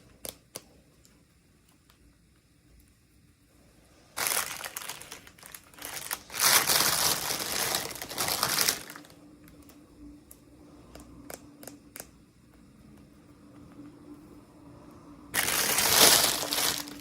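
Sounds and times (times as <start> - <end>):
plastic packaging crinkling: 4.2 - 9.2, 15.4 - 17.0.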